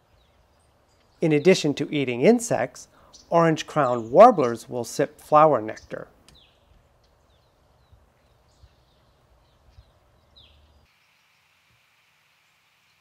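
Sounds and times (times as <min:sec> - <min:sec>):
bird chip calls: 0:02.8 - 0:04.7.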